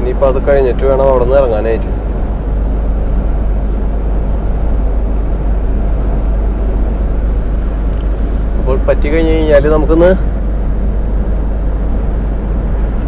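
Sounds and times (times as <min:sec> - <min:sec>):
truck engine and road noise: 0:00.0 - 0:13.0.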